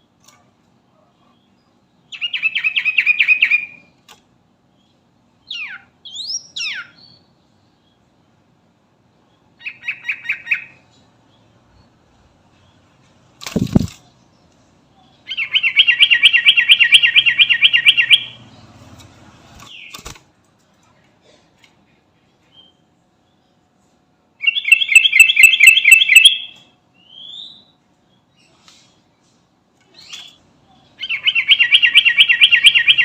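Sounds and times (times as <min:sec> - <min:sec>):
bird whistled call: 0:24.4 - 0:27.7, 0:31.0 - 0:33.0.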